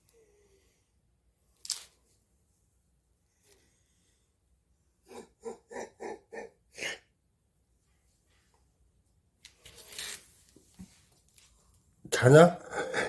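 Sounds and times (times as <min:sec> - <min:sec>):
short breathy vocal sounds: 0:12.1 - 0:13.0.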